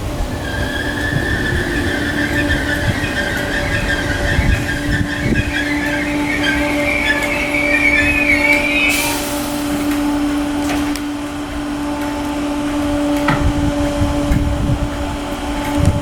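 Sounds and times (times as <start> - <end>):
steady hum: 0.0 - 16.0
train wavering high squeal: 0.0 - 16.0
short hiss: 8.9 - 10.4.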